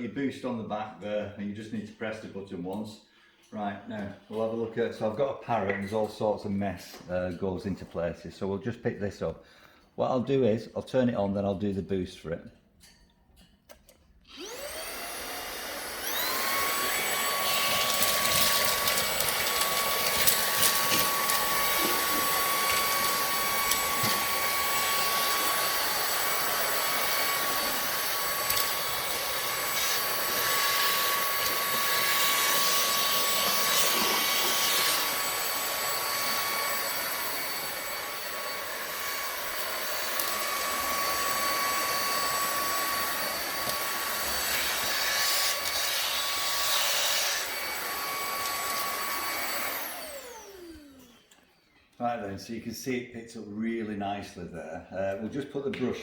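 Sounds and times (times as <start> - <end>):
handheld vacuum cleaner running: 14.3 - 51.7.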